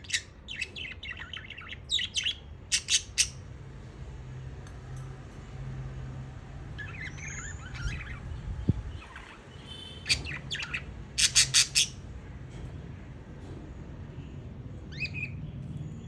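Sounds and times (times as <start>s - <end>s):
budgerigar chirping: 0.0s - 3.4s, 6.8s - 12.0s.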